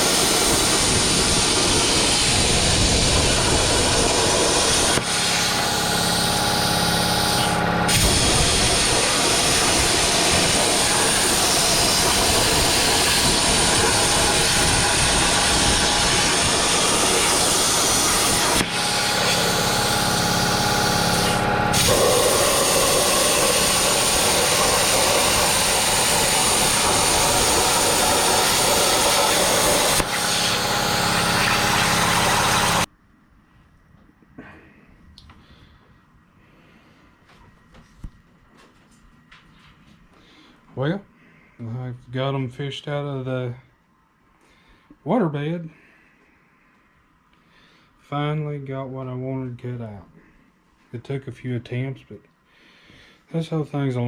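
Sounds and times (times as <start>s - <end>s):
plasma cutter hissing arc: 0.0s - 32.9s
tonal machine hum: 0.0s - 33.1s.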